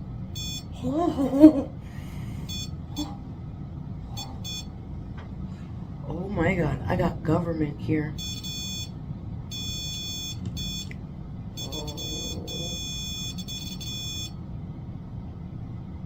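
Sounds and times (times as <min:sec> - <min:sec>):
high electronic beep: 0:00.4 - 0:00.7, 0:02.5 - 0:02.7, 0:04.4 - 0:04.7, 0:08.2 - 0:08.9, 0:09.5 - 0:10.9, 0:11.6 - 0:14.3.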